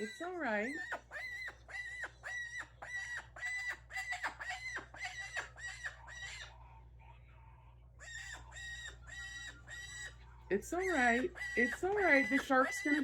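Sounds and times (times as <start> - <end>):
parrot squawking: 0.0 - 7.2, 8.0 - 13.0.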